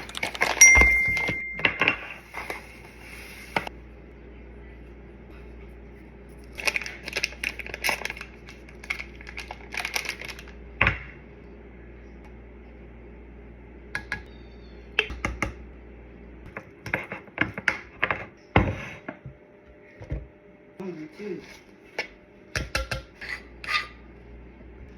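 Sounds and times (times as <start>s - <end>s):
utensils and packaging clattering: 0.0s - 3.7s, 6.5s - 10.6s.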